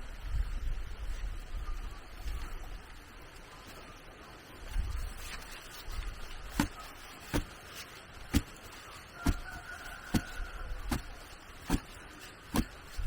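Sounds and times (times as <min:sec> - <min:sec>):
hand tool striking wood: 0:06.5 - 0:07.7, 0:08.3 - 0:09.5, 0:10.1 - 0:12.8.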